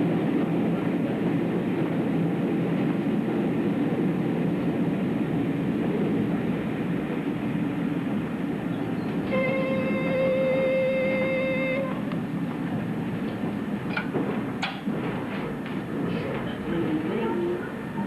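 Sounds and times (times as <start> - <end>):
train rumble and rattle: 0.0 - 18.0.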